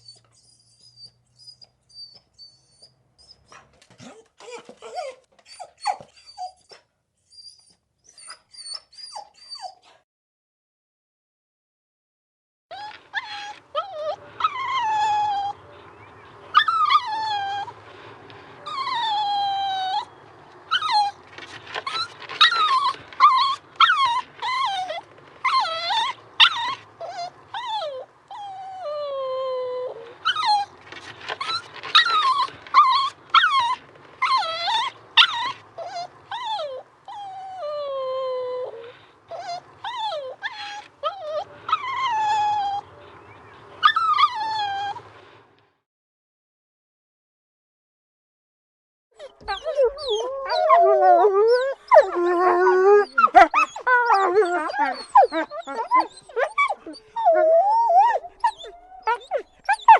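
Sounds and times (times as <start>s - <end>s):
dogs whining: 0.0s - 10.0s, 12.7s - 45.2s, 49.2s - 59.9s
dogs yelping: 12.7s - 45.1s, 49.2s - 59.9s.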